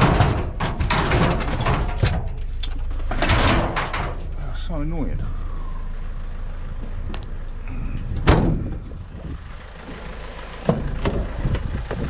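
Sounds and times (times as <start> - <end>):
metal scooter banging: 0.0 - 4.3
low steady rumble: 0.0 - 12.0.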